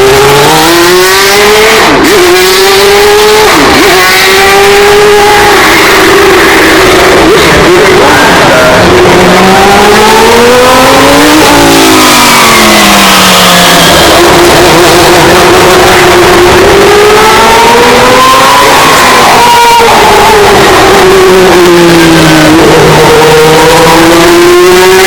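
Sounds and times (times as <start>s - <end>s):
race car engine passing: 0.0s - 25.0s.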